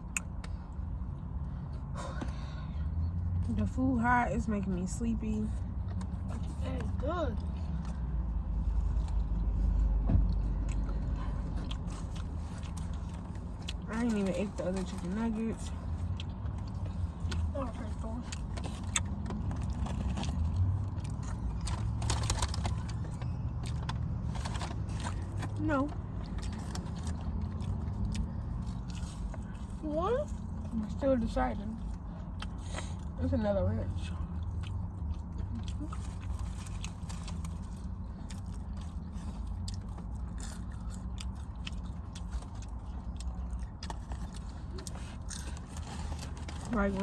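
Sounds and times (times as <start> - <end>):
person chewing: 7.4 - 13.9, 15.7 - 30.7, 34.0 - 46.7.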